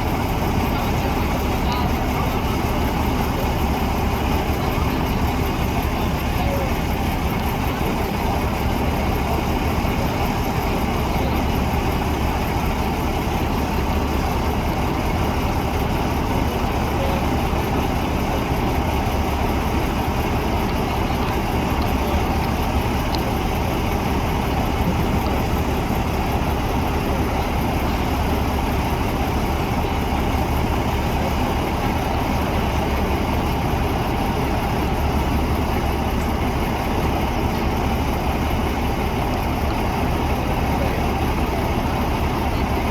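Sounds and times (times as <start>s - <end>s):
truck engine idling: 0.0s - 42.9s.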